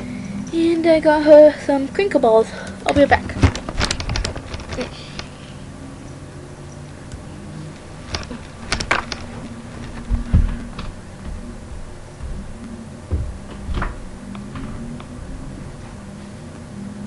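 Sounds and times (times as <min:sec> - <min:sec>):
clicks and knocks: 0:02.9 - 0:05.3, 0:08.0 - 0:11.4
dull thumps: 0:02.9 - 0:05.4, 0:07.8 - 0:16.1.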